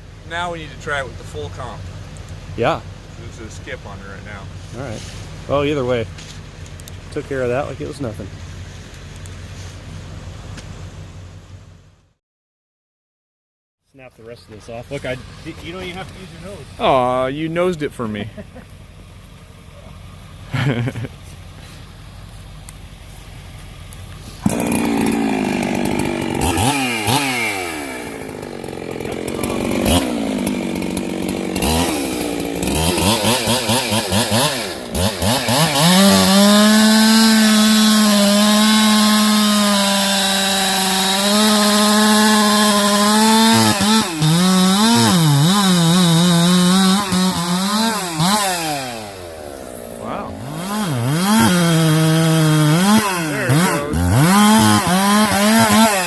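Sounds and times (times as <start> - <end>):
chainsaw revving: 20.5 - 21.1, 24.3 - 56.0.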